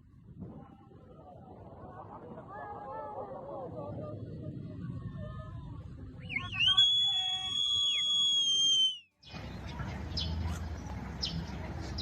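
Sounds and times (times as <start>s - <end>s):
high-pitched whistle: 6.2s - 9.1s
noisy background: 9.2s - 12.0s.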